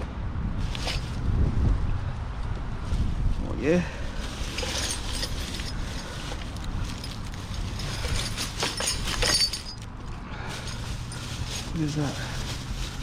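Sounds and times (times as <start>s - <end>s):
steady low rumble: 0.0s - 13.0s
scrap items clattering and rattling: 0.6s - 1.2s, 4.1s - 13.0s.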